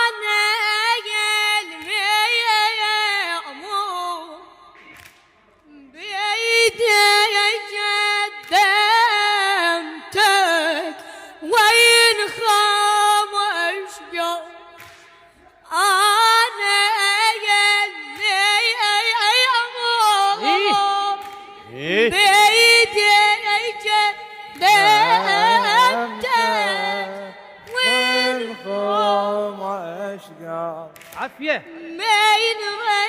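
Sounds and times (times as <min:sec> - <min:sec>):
person singing unaccompanied: 0:15.8 - 0:30.4.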